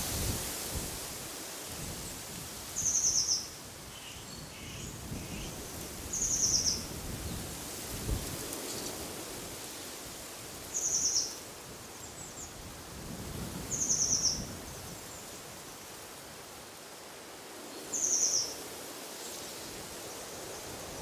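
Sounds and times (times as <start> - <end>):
wind through trees: 0.0 - 21.0
songbird trilling: 17.9 - 18.6.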